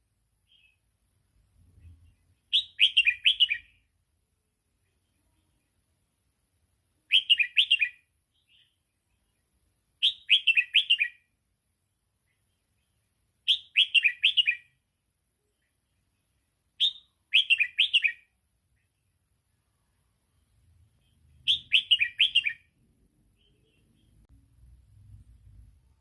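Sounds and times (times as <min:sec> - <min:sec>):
bulbul singing: 0:01.8 - 0:03.9, 0:07.1 - 0:09.4, 0:10.0 - 0:11.3, 0:13.5 - 0:14.8, 0:16.8 - 0:19.0, 0:20.4 - 0:24.3.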